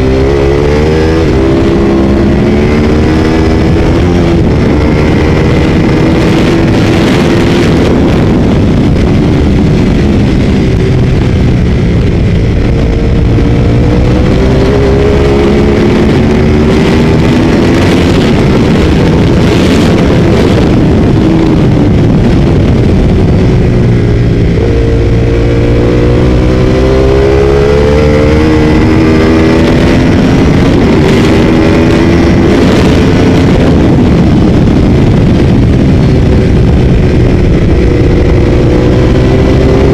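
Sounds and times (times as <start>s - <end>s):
motorcycle engine accelerating: 0.0s - 39.9s
wind noise: 0.0s - 39.9s.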